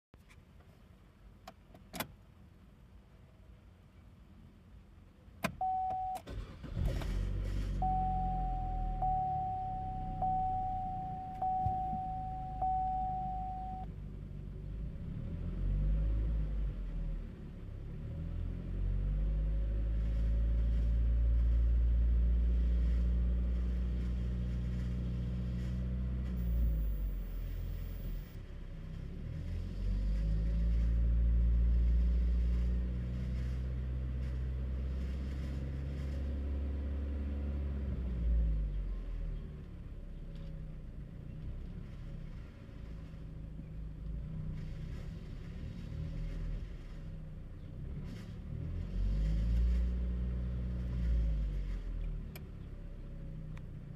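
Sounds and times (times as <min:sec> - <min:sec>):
dashboard chime: 0:05.6 - 0:06.2, 0:07.8 - 0:13.9
car engine revving: 0:05.6 - 0:13.8.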